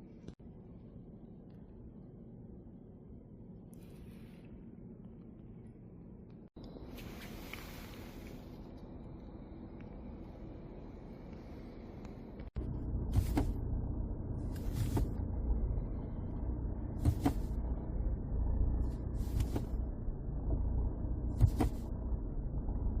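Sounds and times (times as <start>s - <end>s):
car engine idling: 6.6s - 23.0s.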